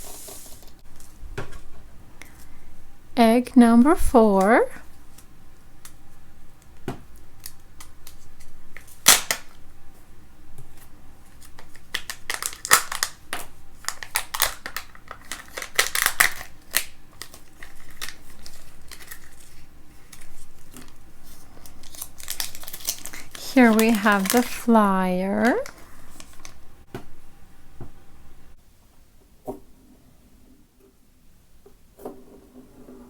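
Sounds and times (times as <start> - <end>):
wrapping crackling: 11.3 - 26.6.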